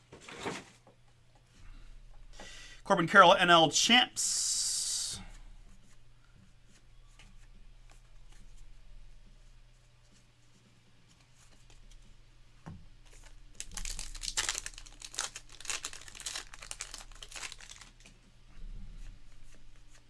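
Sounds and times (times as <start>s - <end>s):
plastic wrapper tearing and crinkling: 13.2s - 18.1s.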